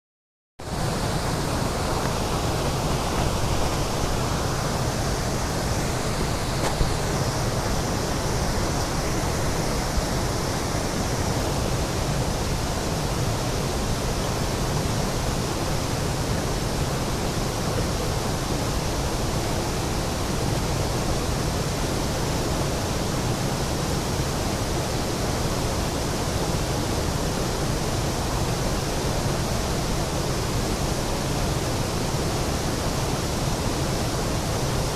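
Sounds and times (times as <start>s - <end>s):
waterfall rushing: 0.6s - 34.9s.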